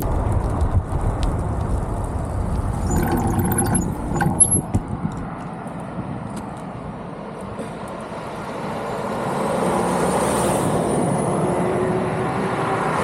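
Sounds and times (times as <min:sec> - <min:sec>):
car engine and tyres: 0:00.0 - 0:13.0
high-pitched squeaks: 0:02.8 - 0:04.7.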